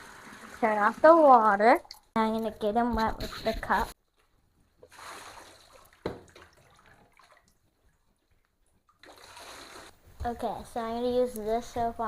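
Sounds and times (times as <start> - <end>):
water poured from cup splashing: 4.8 - 7.6, 8.9 - 10.0.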